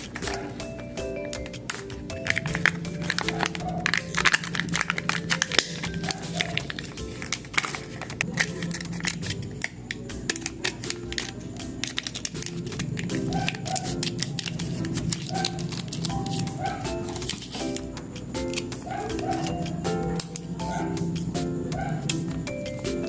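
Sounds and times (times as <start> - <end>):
background music: 0.0 - 23.0
wrappers crinkling and tearing: 1.7 - 17.9.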